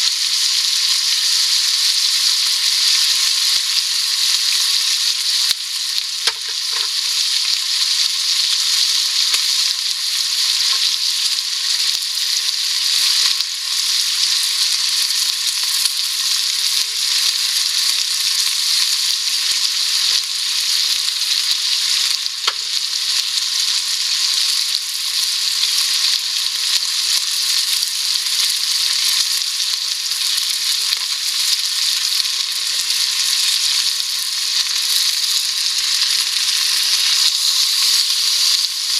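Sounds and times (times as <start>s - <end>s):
food sizzling in a pan: 0.0s - 38.9s
sharp frying pops: 0.0s - 38.9s.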